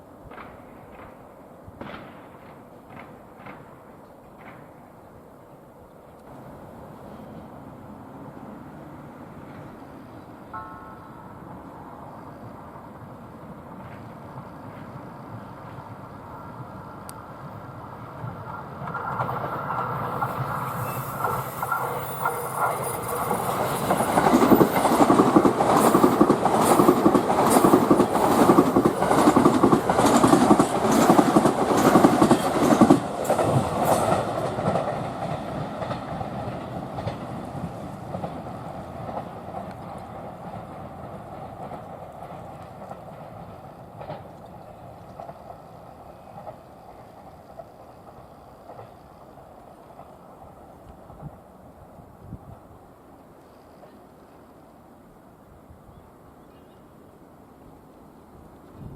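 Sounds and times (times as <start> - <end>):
train wheels clacking on rails: 0.2 - 5.2, 12.4 - 51.5.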